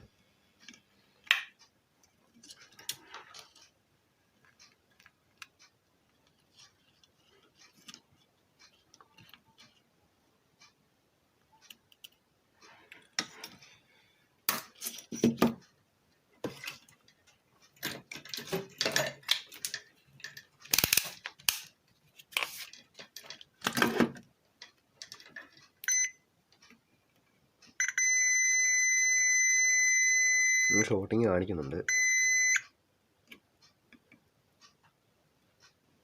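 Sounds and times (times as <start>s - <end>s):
clicks and knocks of handling: 4.4s - 9.8s, 16.4s - 25.8s
multimeter continuity buzzer beep: 25.8s - 26.2s, 27.8s - 30.9s, 31.8s - 32.7s
short beep: 31.9s - 32.6s.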